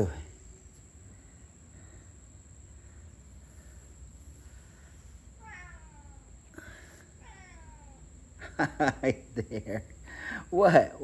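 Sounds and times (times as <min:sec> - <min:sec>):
cat meowing: 0:05.4 - 0:06.4, 0:07.2 - 0:08.1.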